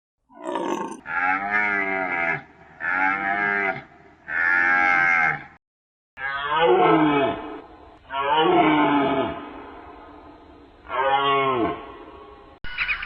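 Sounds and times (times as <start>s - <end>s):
animal call with falling pitch: 0.3s - 1.1s
cow mooing: 0.3s - 5.5s.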